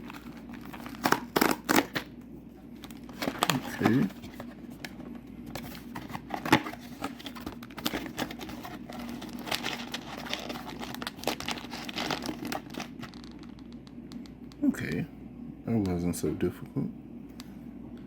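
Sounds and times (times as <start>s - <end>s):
packaging crinkling and tearing: 0.0s - 2.1s, 2.8s - 5.0s, 5.6s - 13.9s.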